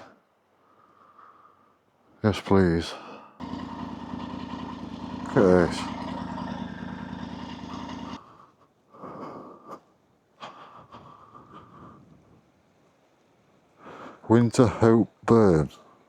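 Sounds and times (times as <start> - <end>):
motorcycle engine running: 3.4 - 8.2.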